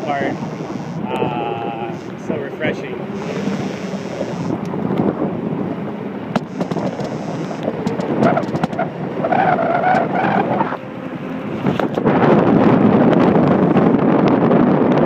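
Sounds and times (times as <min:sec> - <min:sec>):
pitched squeal: 0:00.0 - 0:02.3, 0:06.4 - 0:10.8
wind buffeting microphone: 0:00.0 - 0:15.0
bike clicks and rattles: 0:06.3 - 0:10.1, 0:11.7 - 0:12.1.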